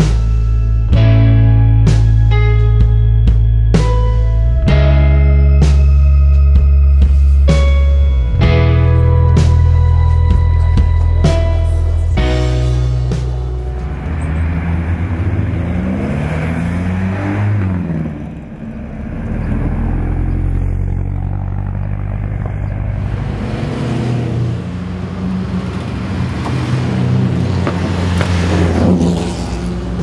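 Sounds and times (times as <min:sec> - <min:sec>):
car engine accelerating: 0:00.0 - 0:30.0
racing car engines running: 0:05.6 - 0:30.0.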